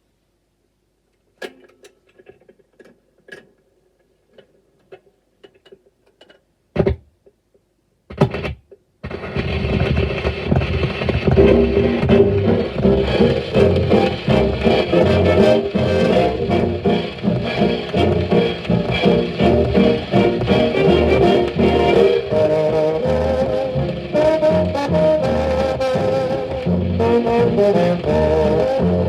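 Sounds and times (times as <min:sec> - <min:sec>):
gramophone record crackles: 0:08.1 - 0:29.0
louder bumps: 0:09.1 - 0:28.2
jazz band playing: 0:09.4 - 0:29.0.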